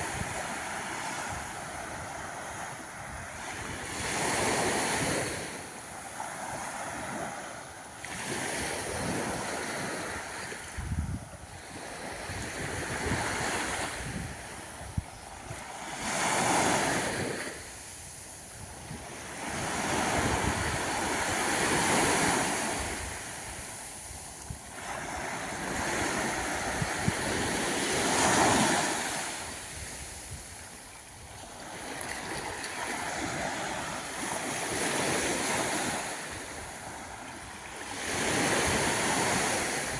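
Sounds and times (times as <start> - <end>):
waves washing up a beach: 0.0 - 39.9.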